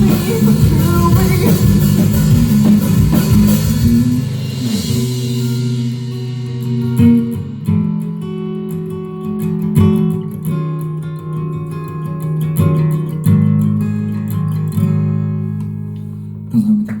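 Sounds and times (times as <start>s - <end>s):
cymbal wash: 0.0s - 8.6s
guitar chords ringing: 0.0s - 16.5s.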